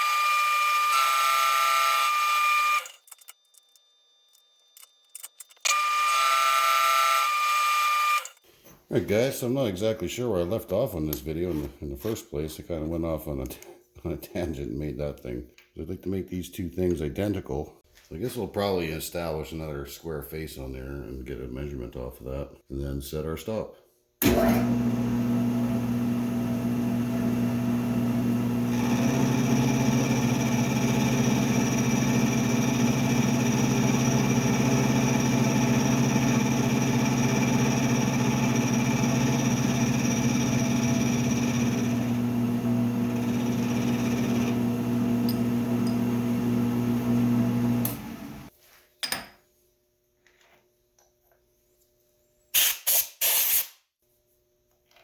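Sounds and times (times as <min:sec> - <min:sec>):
milling machine motor hum: 0:24.2 - 0:48.5.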